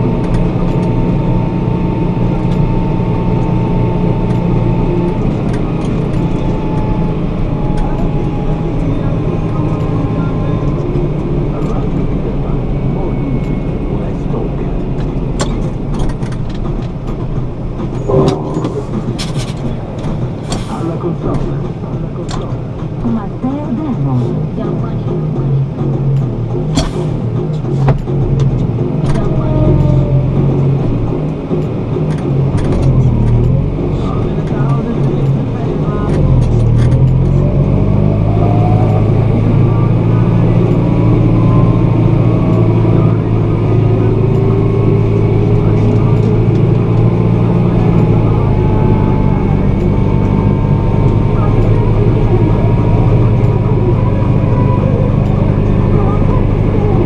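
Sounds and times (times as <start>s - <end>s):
heavy vehicle engine running: 0.0s - 57.0s
faint rising tones: 18.0s - 20.4s, 37.0s - 53.0s.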